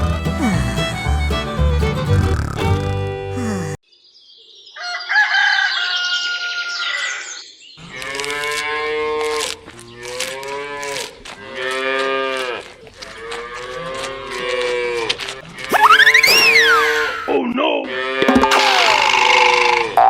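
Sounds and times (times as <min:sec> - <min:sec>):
cows mooing: 0:07.9 - 0:17.3.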